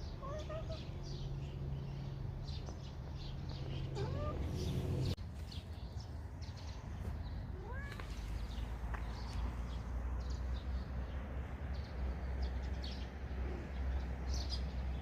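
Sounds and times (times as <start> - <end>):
cat meowing: 0.2 - 0.9, 3.9 - 4.5, 7.6 - 8.2.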